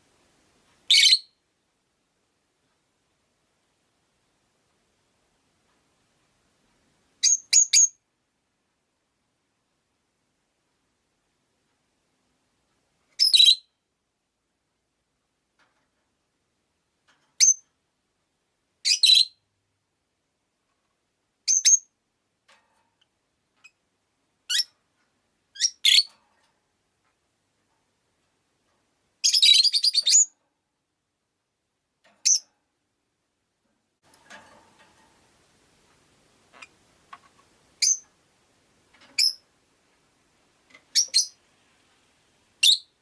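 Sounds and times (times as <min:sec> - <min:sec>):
lovebirds chirping: 0:00.9 - 0:01.4, 0:07.2 - 0:08.0, 0:21.4 - 0:21.9, 0:25.6 - 0:26.1, 0:29.2 - 0:30.3, 0:32.2 - 0:32.5, 0:37.8 - 0:38.0, 0:39.2 - 0:39.4, 0:40.9 - 0:41.4, 0:42.6 - 0:43.0
lovebird chattering call: 0:37.8 - 0:38.0, 0:40.9 - 0:41.4.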